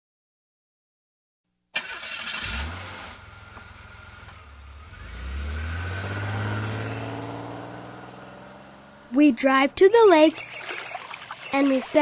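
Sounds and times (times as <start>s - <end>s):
car engine revving: 1.8s - 9.9s.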